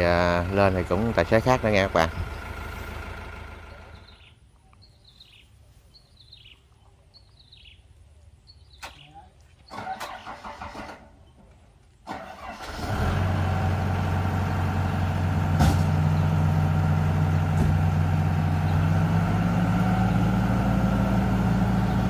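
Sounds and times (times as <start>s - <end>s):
diesel engine starting and running: 0.0s - 4.3s, 9.7s - 11.2s, 12.0s - 22.0s.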